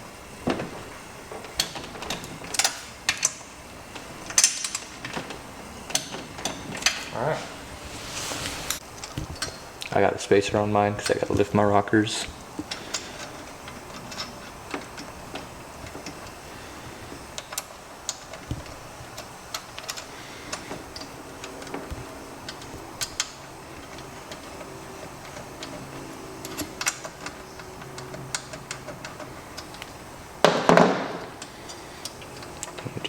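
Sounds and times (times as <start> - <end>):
metallic clicks of engine parts: 4.2 - 5.3, 17.4 - 21.8.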